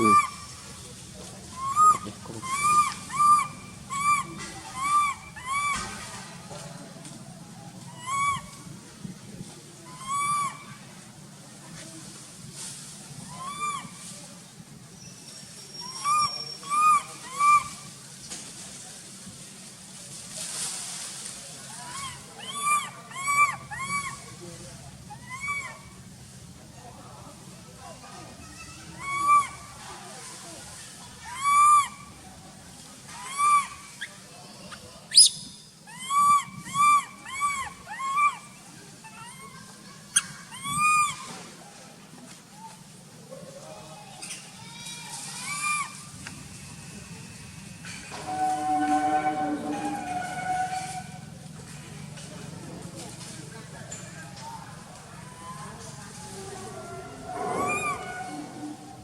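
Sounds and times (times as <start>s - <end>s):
baby monkey crying: 1.6s - 5.8s, 15.9s - 17.7s, 21.9s - 24.3s, 25.1s - 25.8s, 29.0s - 29.7s, 31.2s - 32.0s, 33.2s - 33.7s, 35.9s - 38.4s, 40.5s - 41.2s
sharp squeal: 57.1s - 58.8s.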